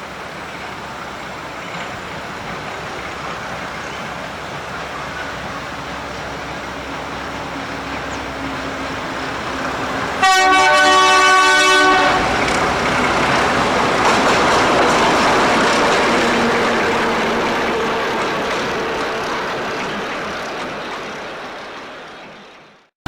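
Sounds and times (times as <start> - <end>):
train engine rumble: 0.0 - 22.9
locomotive horn chord: 6.9 - 20.5.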